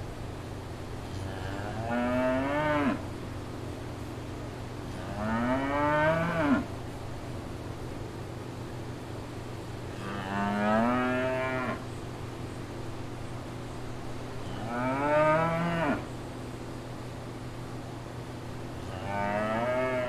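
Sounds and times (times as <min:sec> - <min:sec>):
cow mooing: 0:01.3 - 0:03.0, 0:05.0 - 0:06.7, 0:10.0 - 0:11.8, 0:14.5 - 0:16.1, 0:18.9 - 0:20.0.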